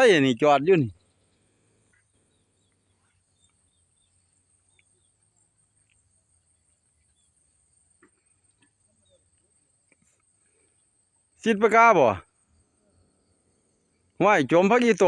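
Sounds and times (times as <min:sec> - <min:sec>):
faint ticks: 0:01.9 - 0:07.3, 0:07.9 - 0:10.8.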